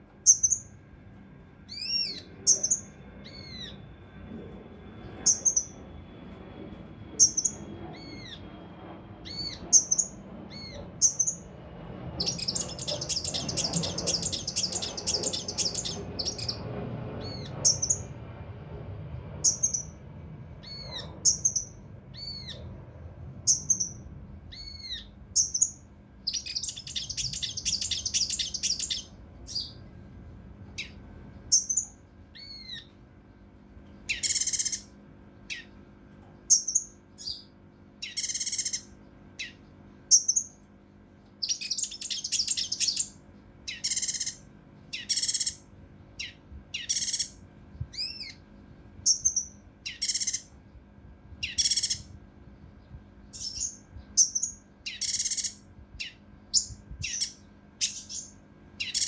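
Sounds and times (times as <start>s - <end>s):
bird whistling notes: 0.2s - 0.7s, 1.7s - 3.9s, 5.2s - 5.8s, 7.2s - 8.5s, 9.2s - 11.5s, 12.2s - 16.6s, 17.2s - 18.1s, 19.4s - 20.0s, 20.6s - 22.6s, 23.5s - 29.8s, 34.1s - 34.9s, 38.0s - 40.6s, 41.4s - 44.4s, 45.0s - 45.6s, 46.2s - 48.4s, 49.0s - 50.5s, 51.4s - 52.1s, 53.3s - 59.0s
rapid bird song run: 5.0s - 18.4s, 19.2s - 30.1s, 34.0s - 40.6s, 41.4s - 50.7s, 51.4s - 59.0s
raspy bird calls: 12.2s - 16.6s, 24.5s - 29.7s, 34.1s - 34.9s, 38.0s - 40.5s, 41.4s - 45.6s, 46.2s - 48.4s, 51.4s - 52.1s, 53.4s - 59.0s.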